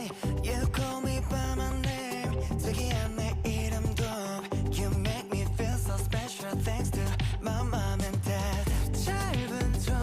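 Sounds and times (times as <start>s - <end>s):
pop song playing: 0.0s - 10.0s.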